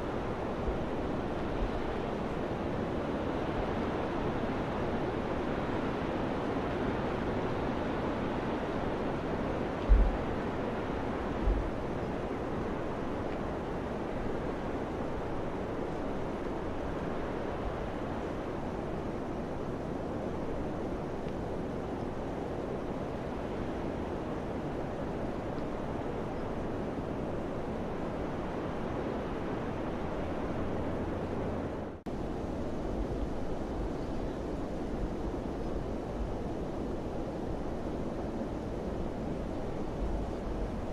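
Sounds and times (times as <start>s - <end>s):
wind buffeting microphone: 7.0s - 18.6s.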